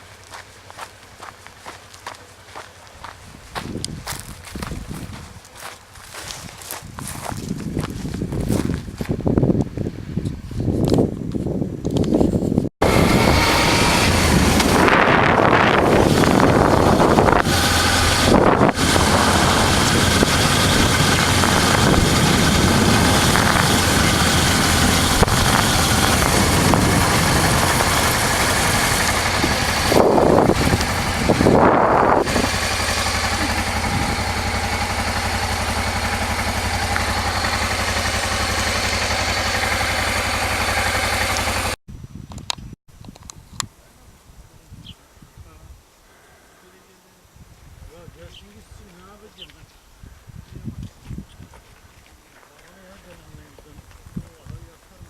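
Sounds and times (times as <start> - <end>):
motorcycle engine running: 0.0 - 9.3, 12.8 - 41.8
wind rushing over microphone: 3.2 - 5.4, 6.2 - 38.8, 47.3 - 48.9, 49.8 - 52.0.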